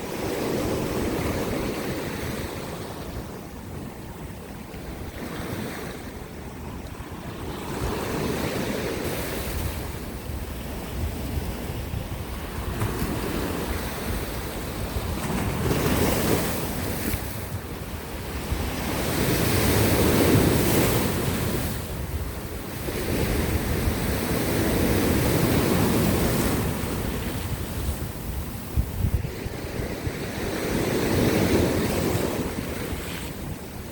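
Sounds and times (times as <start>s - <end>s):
wind buffeting microphone: 0.0s - 33.9s
sea waves breaking on rocks: 12.5s - 28.2s.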